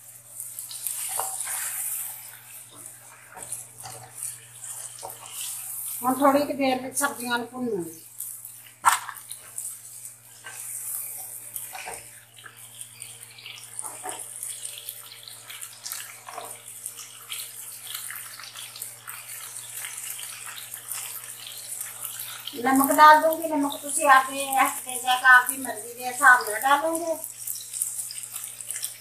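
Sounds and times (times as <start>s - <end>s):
vegetables sizzling in hot oil: 0.0s - 29.0s
stirring scrapes: 0.8s - 6.2s.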